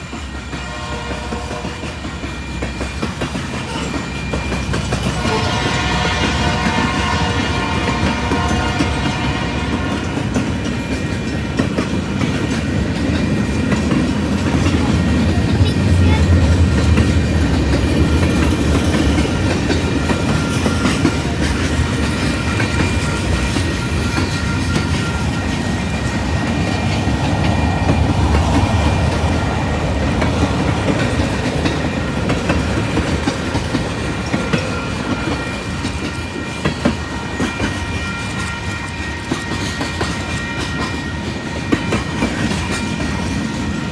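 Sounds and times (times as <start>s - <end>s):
train rumble: 0.0s - 43.9s
train wheels clattering: 0.0s - 43.9s.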